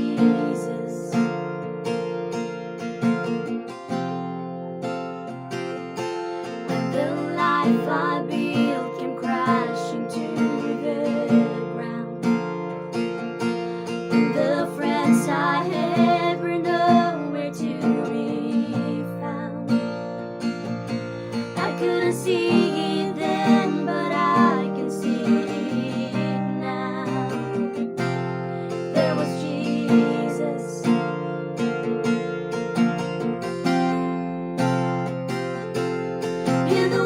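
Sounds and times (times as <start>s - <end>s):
women singing: 0.0s - 1.3s, 6.8s - 12.4s, 14.1s - 20.0s, 21.2s - 31.1s, 36.6s - 37.0s
strummed acoustic guitar: 0.0s - 37.0s.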